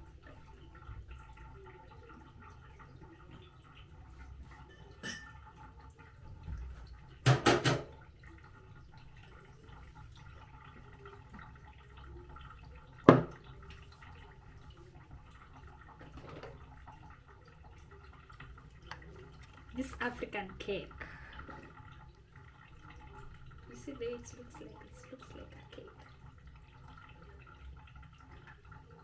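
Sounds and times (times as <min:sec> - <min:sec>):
kitchen utensils knocking: 0:05.0 - 0:05.4, 0:07.3 - 0:07.9.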